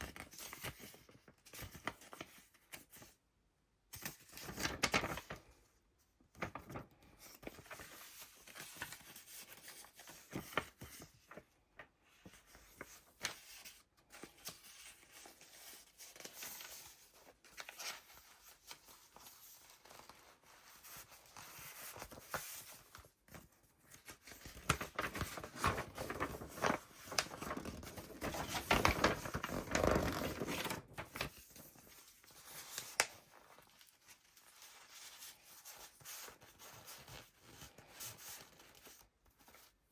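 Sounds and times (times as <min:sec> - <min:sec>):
paper pages rustling: 0:00.1 - 0:03.1, 0:04.0 - 0:05.6, 0:06.4 - 0:39.7.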